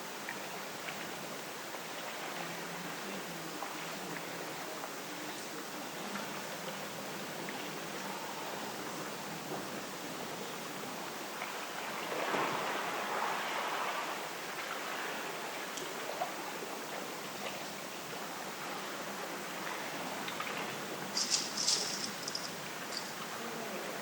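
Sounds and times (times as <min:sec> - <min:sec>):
sea waves washing ashore: 0:00.0 - 0:24.0
wind: 0:00.0 - 0:24.0.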